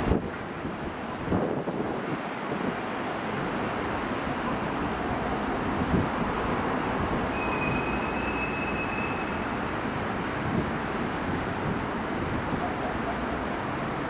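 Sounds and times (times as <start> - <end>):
train rumbling over rails: 0.0 - 14.0
high-pitched squeal: 7.3 - 9.6.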